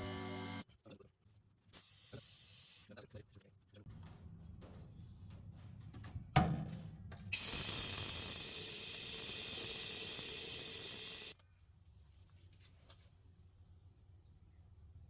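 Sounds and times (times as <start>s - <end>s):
compressed air hissing: 7.3s - 11.4s.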